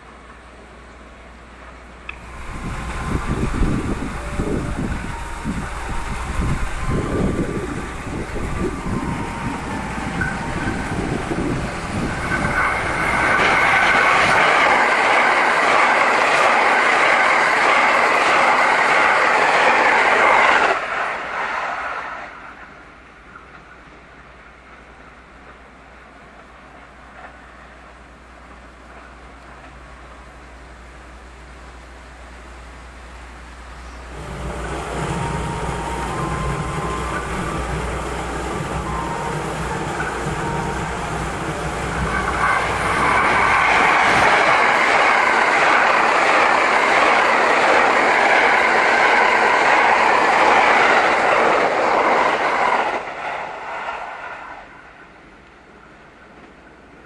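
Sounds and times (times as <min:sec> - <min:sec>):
constant low hum: 0:00.0 - 0:13.8
train rushing past: 0:01.6 - 0:57.0
faint thin whine: 0:02.0 - 0:14.4
rail-joint clicks: 0:02.0 - 0:27.9, 0:33.8 - 0:54.1.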